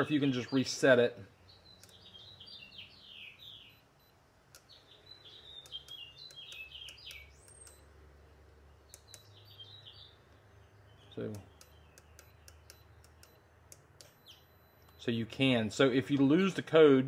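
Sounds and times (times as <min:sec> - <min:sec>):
songbird descending chirps: 0:00.0 - 0:07.9, 0:08.6 - 0:13.4
faint clicks: 0:04.5 - 0:04.8, 0:05.6 - 0:07.8, 0:08.9 - 0:09.3.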